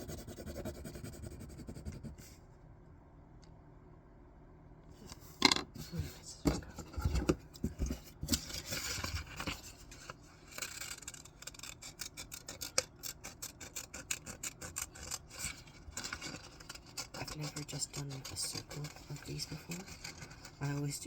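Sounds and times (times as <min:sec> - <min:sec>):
paper rustling: 0:06.9 - 0:12.7
scissors snipping paper: 0:10.5 - 0:21.0.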